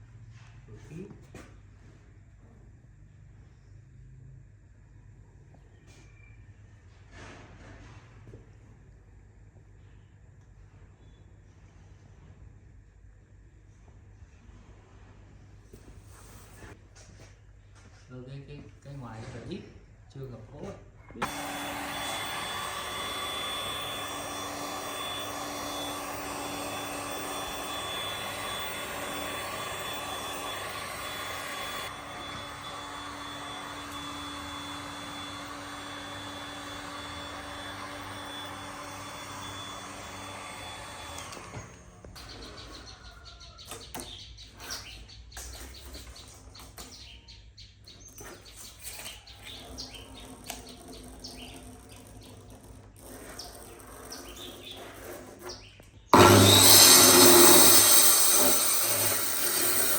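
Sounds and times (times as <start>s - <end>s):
machine running with high whine: 21.2s - 41.5s, 56.2s - 59.9s.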